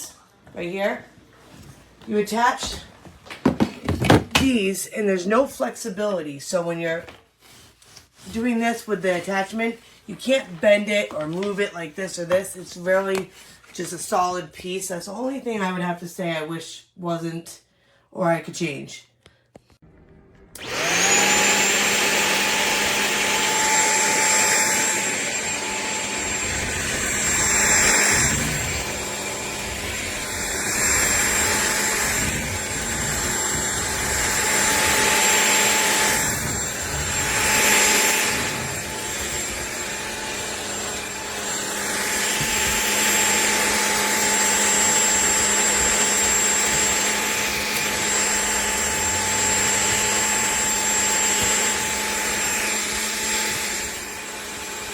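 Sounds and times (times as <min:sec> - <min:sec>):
stick vacuum motor whine: 0:19.9 - 0:54.9.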